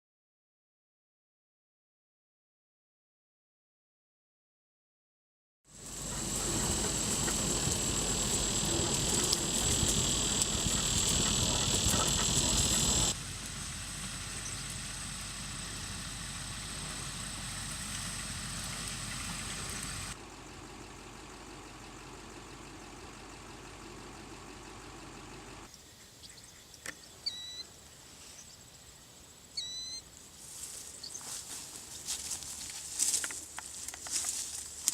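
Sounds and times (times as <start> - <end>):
high insect trill: 5.7 - 34.9
low rumble: 5.8 - 21.4
short bird chirps: 26.2 - 27.7, 29.6 - 30.0.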